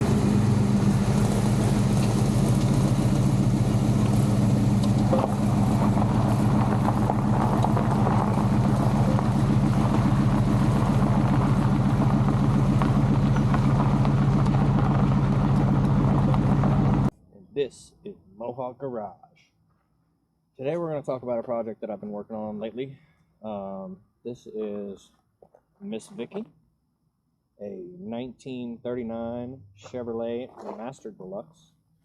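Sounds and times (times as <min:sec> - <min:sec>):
car engine idling: 0:00.0 - 0:17.1.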